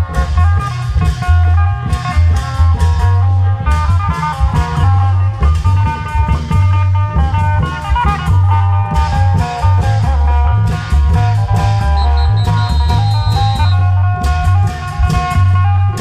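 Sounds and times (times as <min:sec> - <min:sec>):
deep bass notes: 0:00.0 - 0:16.0
drum hits: 0:11.8 - 0:13.9.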